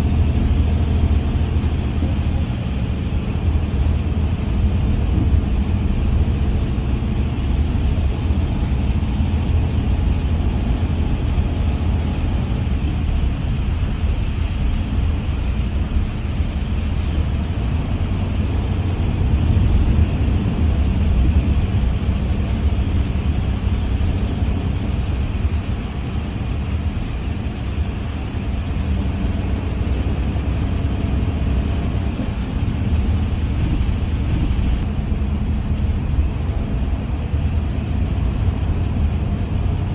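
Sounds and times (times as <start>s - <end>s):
vehicle ride rumble: 0.0s - 39.9s.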